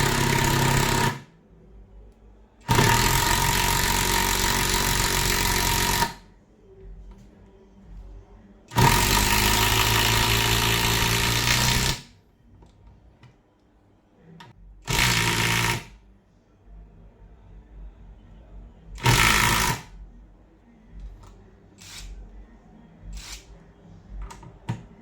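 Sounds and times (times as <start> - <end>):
impact driver rattling: 0.0 - 1.2, 2.7 - 6.2, 8.7 - 12.0, 14.9 - 15.9, 19.0 - 19.8.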